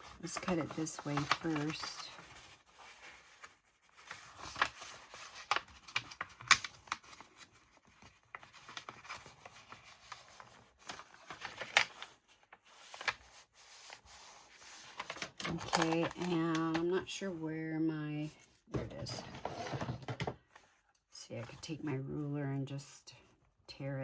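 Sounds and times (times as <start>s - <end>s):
paper rustling: 0.0s - 17.0s.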